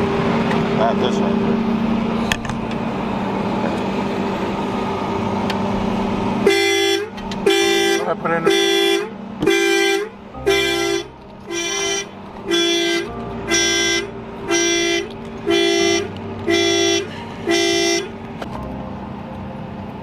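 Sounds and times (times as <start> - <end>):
car alarm horn honking: 6.4 - 18.2.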